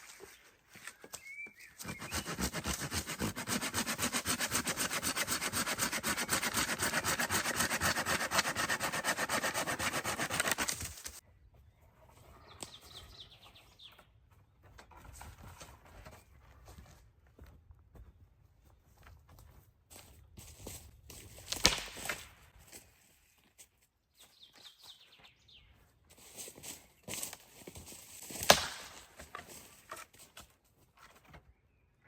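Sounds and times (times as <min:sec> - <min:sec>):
hand saw cutting wood: 0:01.8 - 0:11.2, 0:28.3 - 0:30.2.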